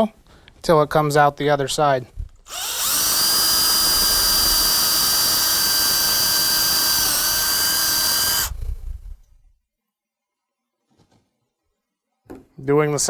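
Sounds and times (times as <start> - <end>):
drill winding down: 2.5 - 9.3
electric drill whining: 2.5 - 9.4.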